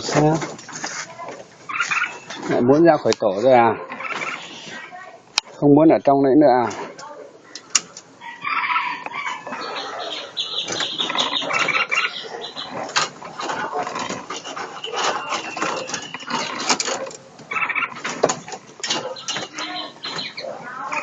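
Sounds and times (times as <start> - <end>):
songbirds chirping: 0.0 - 21.0
sharp clicks and knocks: 12.7 - 20.4.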